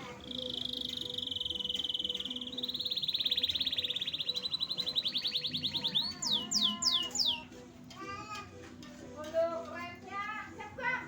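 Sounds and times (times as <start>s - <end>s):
canary singing a fast trill: 0.0s - 7.6s.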